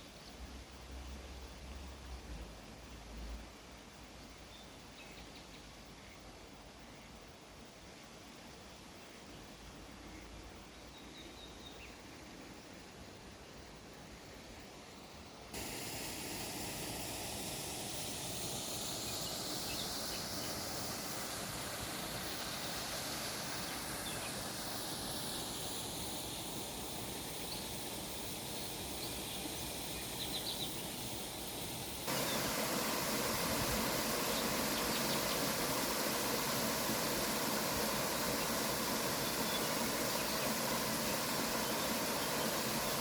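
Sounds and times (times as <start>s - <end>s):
waterfall rushing: 15.6s - 25.6s, 30.8s - 43.0s.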